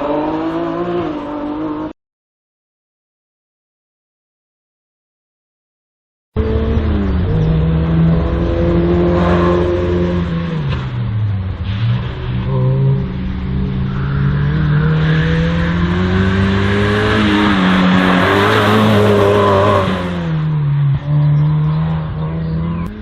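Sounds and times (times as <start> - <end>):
race car engine revving: 6.4 - 23.0.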